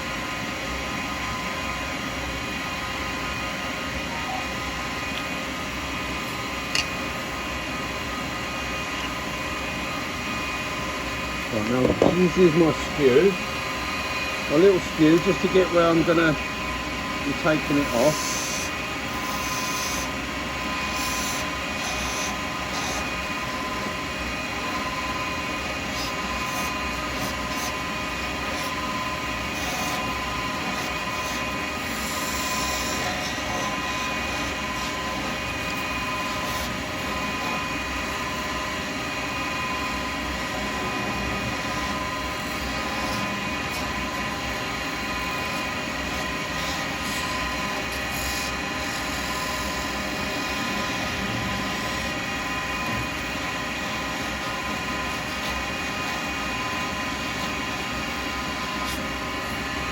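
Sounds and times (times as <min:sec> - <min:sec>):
wood lathe motor whine: 0:00.0 - 0:59.9
chisel scraping spinning wood: 0:11.5 - 0:13.5, 0:14.4 - 0:24.0, 0:24.8 - 0:37.7.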